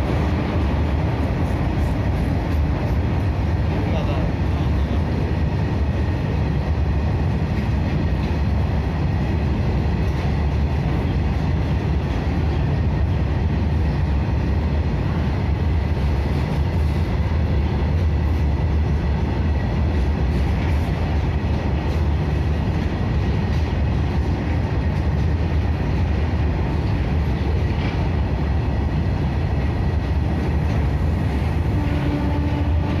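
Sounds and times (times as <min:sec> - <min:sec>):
train low rumble: 0:00.0 - 0:33.0.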